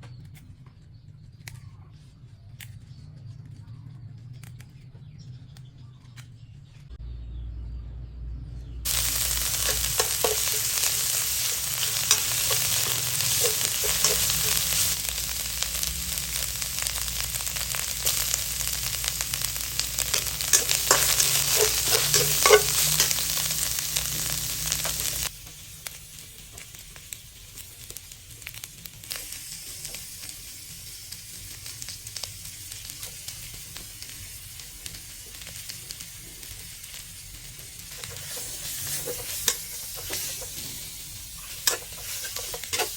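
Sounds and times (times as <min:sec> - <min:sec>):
stir-fry sizzling in a pan: 0:08.8 - 0:42.9
stirring clicks: 0:08.9 - 0:25.3, 0:37.9 - 0:40.7, 0:41.4 - 0:42.9.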